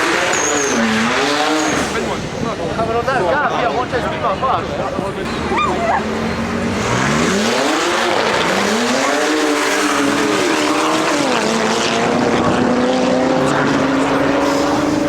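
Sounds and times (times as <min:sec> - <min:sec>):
car engine accelerating hard: 0:05.3 - 0:15.0.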